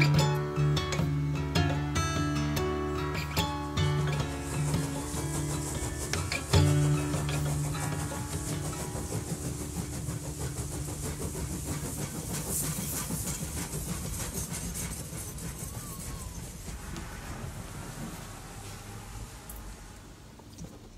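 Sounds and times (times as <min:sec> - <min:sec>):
guitar chord ringing: 0:00.0 - 0:09.1
train clattering and hissing: 0:00.0 - 0:20.9.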